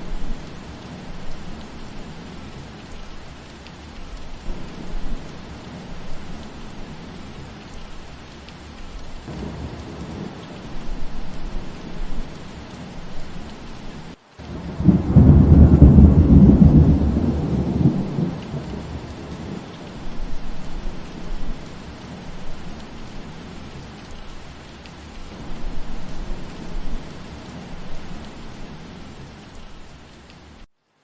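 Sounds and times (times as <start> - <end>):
steady rain: 0.0 - 31.0
thunder rumbling: 9.2 - 24.0.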